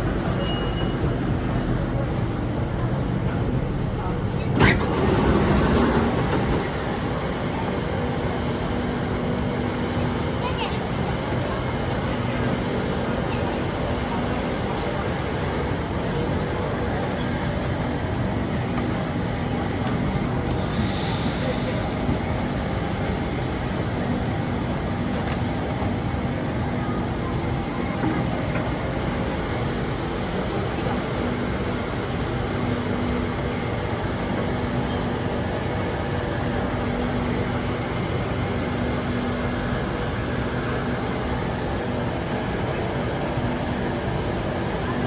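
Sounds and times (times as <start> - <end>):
train wheels rumbling: 0.0 - 45.0.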